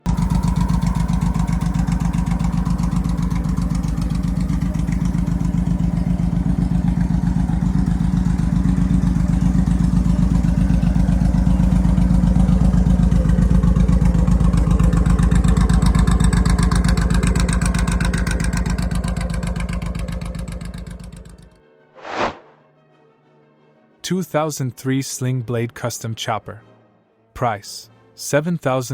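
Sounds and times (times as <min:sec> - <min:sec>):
motorcycle engine running: 0:00.0 - 0:21.5
brief swoosh: 0:22.0 - 0:22.6.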